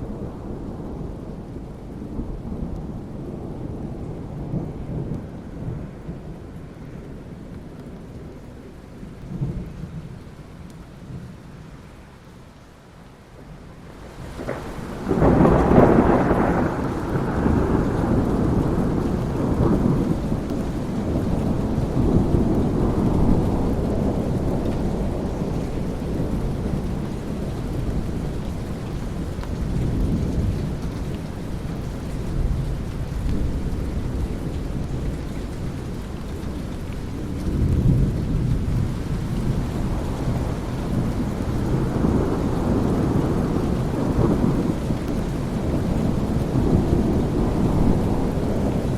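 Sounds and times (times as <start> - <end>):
steady rain: 0.0 - 48.9
rolling thunder: 14.0 - 48.9.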